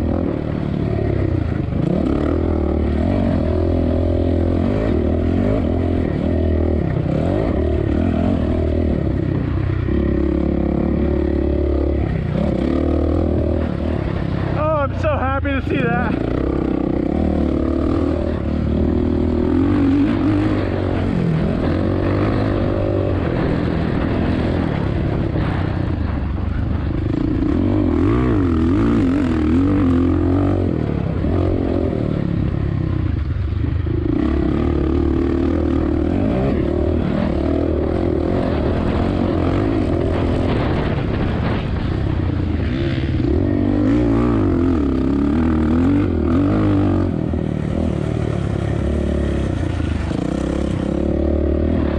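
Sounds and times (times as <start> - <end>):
dirt bike engine racing: 0.0 - 51.9.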